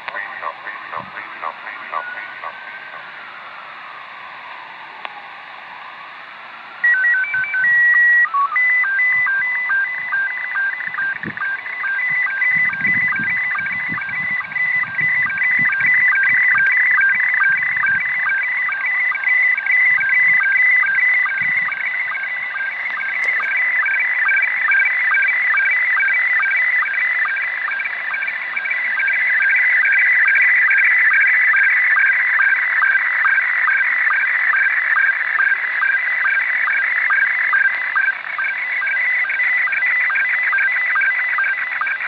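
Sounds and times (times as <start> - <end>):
radio static hiss: 0.0 - 4.0, 9.1 - 31.7
warbling signal beeps: 0.1 - 3.1, 6.8 - 42.0.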